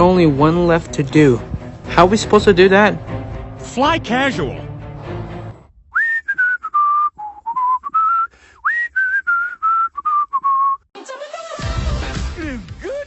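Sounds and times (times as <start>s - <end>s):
person whistling a tune: 5.9s - 10.9s.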